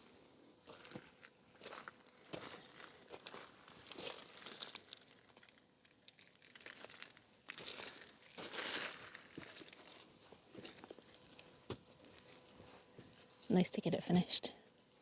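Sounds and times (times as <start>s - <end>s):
crunching and rustling: 6.2s - 10.8s.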